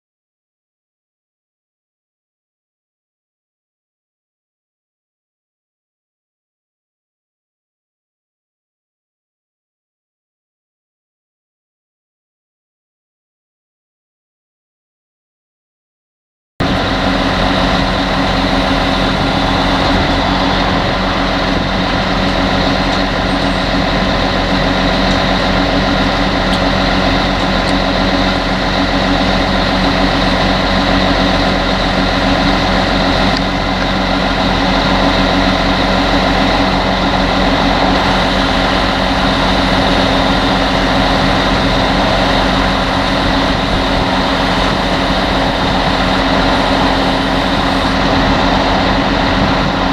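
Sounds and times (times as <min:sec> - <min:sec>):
heavy machinery engine drone: 0:16.6 - 0:49.9.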